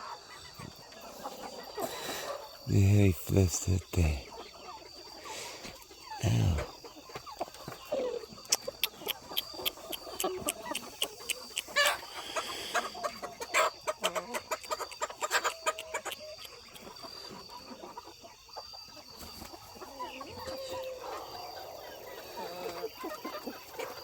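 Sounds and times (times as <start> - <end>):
chickens clucking: 0.0 - 24.0
sharp clicks and taps: 8.5 - 11.7.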